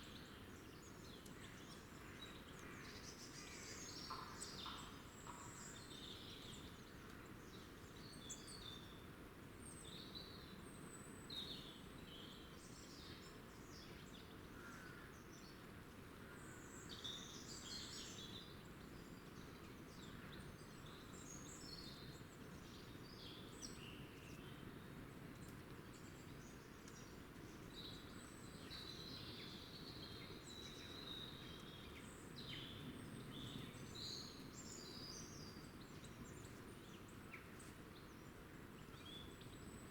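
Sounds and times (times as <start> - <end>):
small birds chirping and singing: 16.4 - 39.9.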